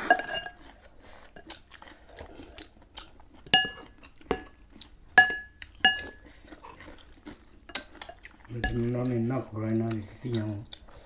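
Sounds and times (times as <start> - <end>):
cutlery clinking against a dish: 0.0 - 0.6, 3.5 - 4.5, 5.2 - 6.2, 8.6 - 9.2.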